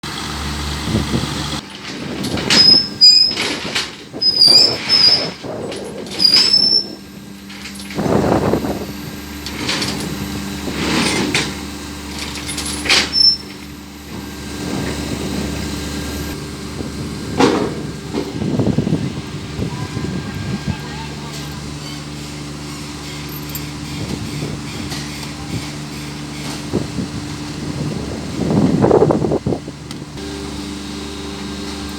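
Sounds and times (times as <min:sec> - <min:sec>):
truck engine hum: 0:00.0 - 0:31.9
short high squeals: 0:02.2 - 0:08.4, 0:12.2 - 0:13.7, 0:21.8 - 0:26.6.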